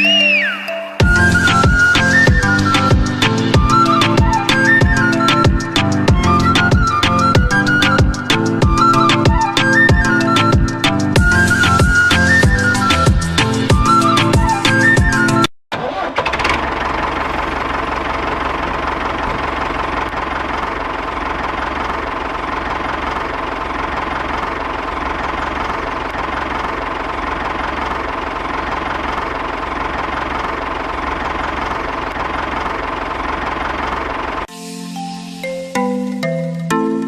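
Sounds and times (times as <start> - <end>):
small engine running: 16.0 - 34.5.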